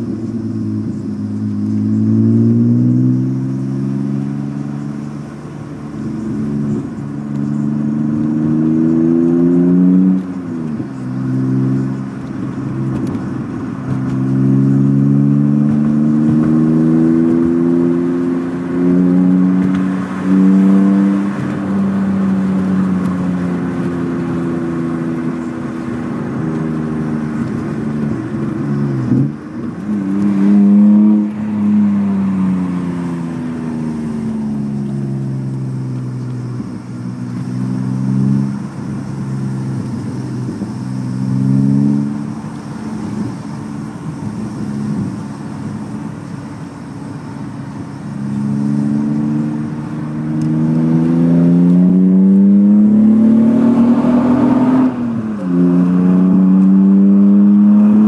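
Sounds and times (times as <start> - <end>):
car engine exhaust: 0.0 - 58.0.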